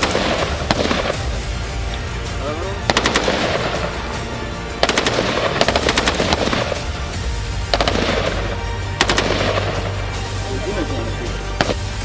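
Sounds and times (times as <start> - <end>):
rifle firing rapid shots: 0.0 - 1.5, 2.8 - 7.1, 7.7 - 10.1, 11.6 - 12.0
background music: 0.0 - 12.0.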